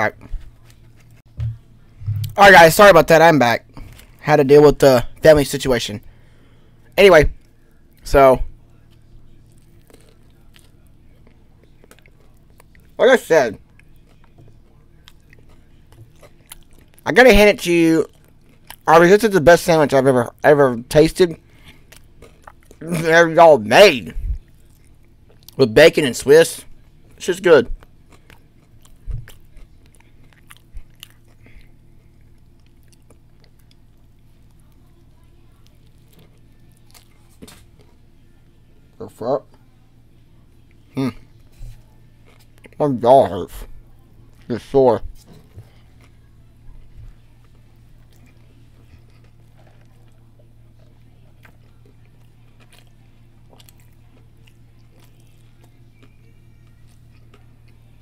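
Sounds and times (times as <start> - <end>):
steady low hum: 0.0 - 58.0
low thump: 1.3 - 2.4
person chewing: 8.8 - 13.0, 13.6 - 17.0, 18.0 - 19.0, 21.4 - 22.8, 24.4 - 25.6, 26.7 - 38.0, 40.7 - 44.5, 47.1 - 58.0.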